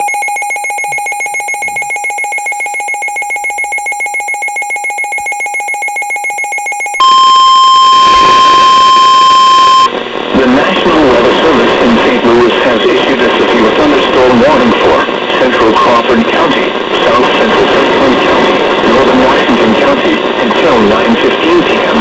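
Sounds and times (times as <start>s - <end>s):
rapidly pulsing electronic alert tone: 0.0s - 7.0s
steady single-pitch alarm tone: 0.0s - 9.9s.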